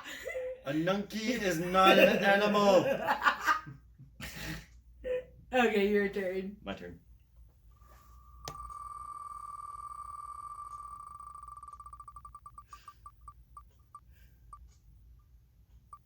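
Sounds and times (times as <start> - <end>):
spinning wheel ticking: 8.2 - 14.7.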